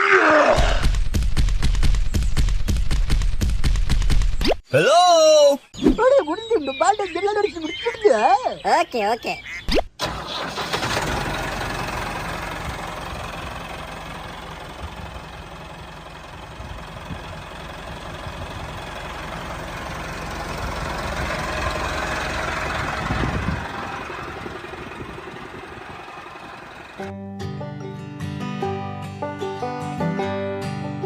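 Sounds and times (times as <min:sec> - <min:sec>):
engine running: 0:10.0 - 0:27.2
music: 0:27.0 - 0:31.0.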